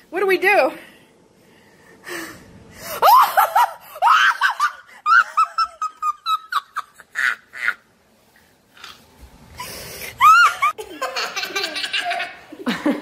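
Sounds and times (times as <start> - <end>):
high-pitched person laughing: 3.0 - 7.9, 10.2 - 13.0.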